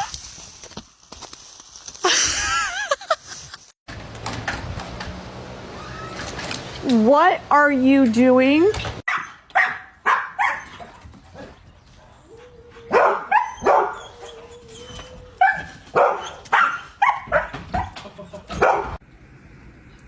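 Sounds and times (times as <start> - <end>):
dog barking: 9.1 - 10.8, 12.9 - 14.2, 15.4 - 19.0.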